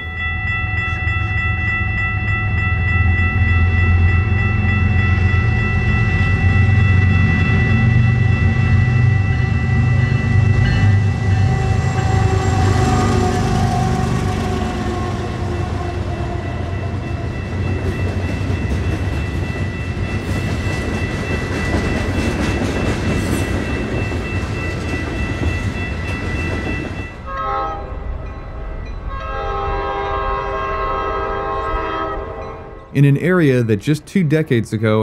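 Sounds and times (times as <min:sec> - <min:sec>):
locomotive engine: 0:00.0 - 0:28.6
train cars rumbling and clacking: 0:00.0 - 0:35.0
train horn blasts: 0:10.5 - 0:16.8, 0:27.3 - 0:28.1, 0:29.1 - 0:33.0.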